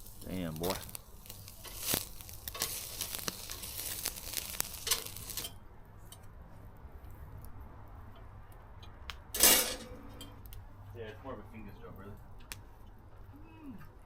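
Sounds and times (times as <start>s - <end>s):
meat sizzling on a grill: 0.0s - 5.6s
fire crackles and ticks: 0.0s - 9.4s, 10.1s - 14.0s.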